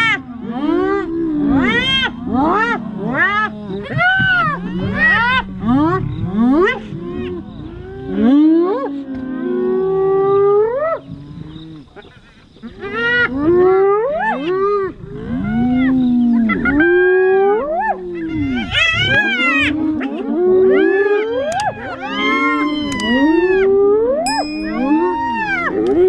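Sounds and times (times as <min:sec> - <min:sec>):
animals calling: 0:00.0 - 0:26.0.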